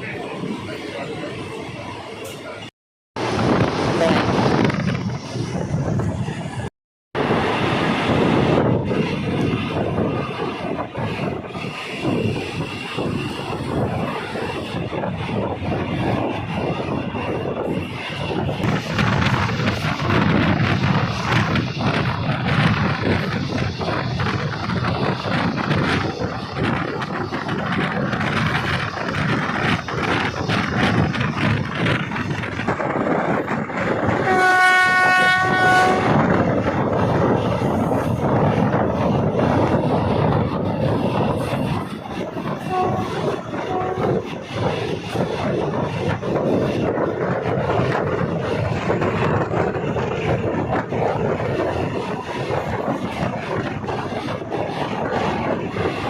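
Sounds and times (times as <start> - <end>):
train running on track: 0.0 - 56.0
wheels clacking over rail joints: 8.1 - 56.0
locomotive horn blast: 34.2 - 36.2, 42.6 - 44.2.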